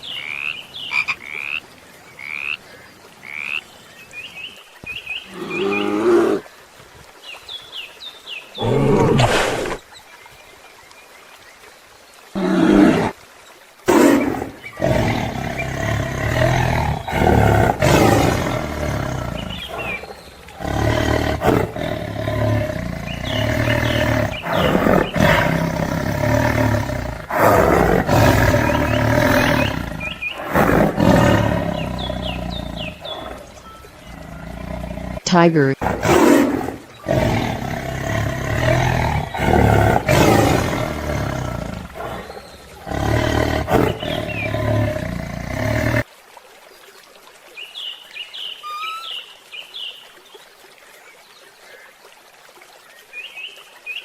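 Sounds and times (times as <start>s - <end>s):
deep animal roars and growls: 13.9s - 35.2s, 35.8s - 46.0s.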